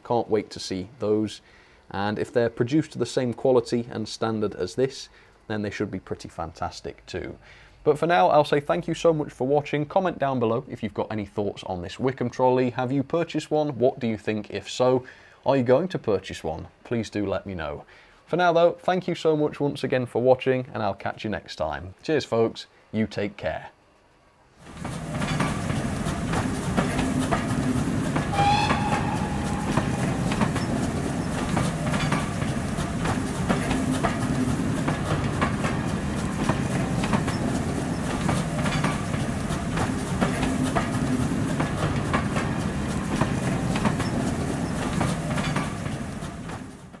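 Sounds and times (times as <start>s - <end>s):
rail vehicle engine hum: 23.8s - 47.0s
wheels clicking over rail joints: 24.6s - 47.0s
short high horn toot: 28.3s - 30.8s.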